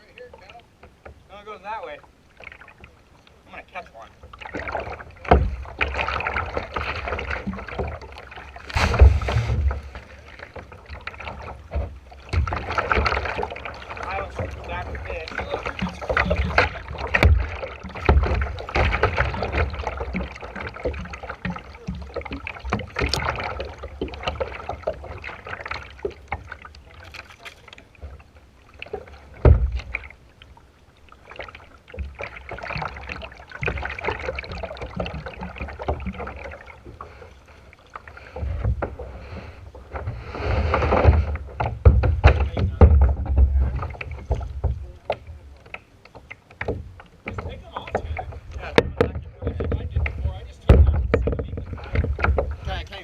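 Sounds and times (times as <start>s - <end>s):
paddle strokes splashing: 0.0s - 53.0s
knocks: 41.0s - 43.6s, 46.6s - 52.6s.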